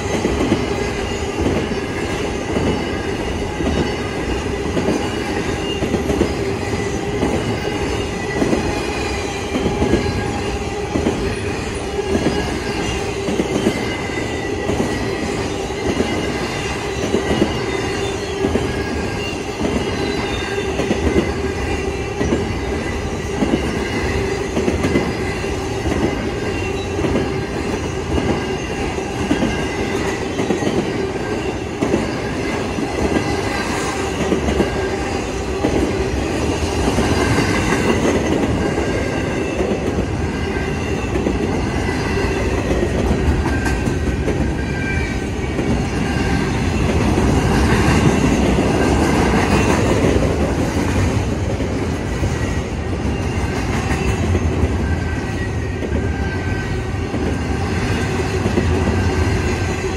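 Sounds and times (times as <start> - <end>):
train wheels clattering over rails: 0.0 - 59.9.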